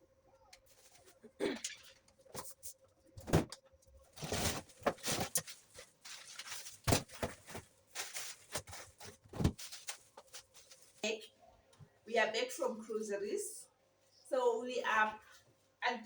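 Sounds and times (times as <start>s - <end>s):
rustling: 4.1s - 11.1s
knocks bumps and clatters: 6.6s - 9.9s.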